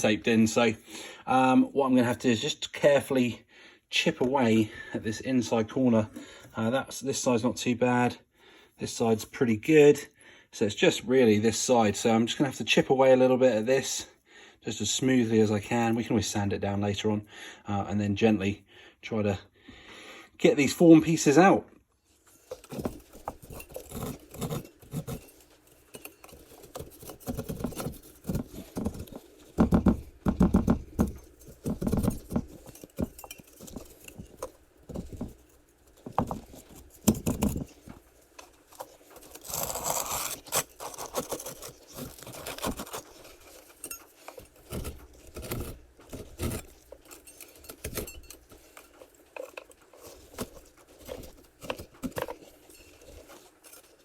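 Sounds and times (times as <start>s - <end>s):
hand tool chipping and scraping: 22.3s - 54.0s.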